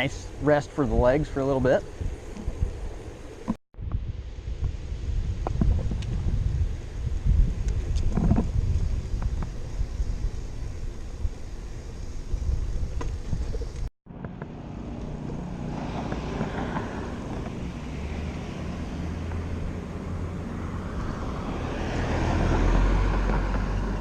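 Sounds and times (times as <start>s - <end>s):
bicycle tyres on pavement: 0.0s - 24.0s
wind on microphone: 3.8s - 24.0s.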